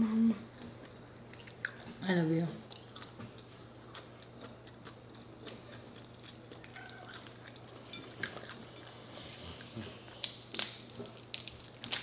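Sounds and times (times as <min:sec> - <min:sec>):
quiet chewing: 0:02.6 - 0:11.2
crab shells clicking: 0:10.2 - 0:12.0.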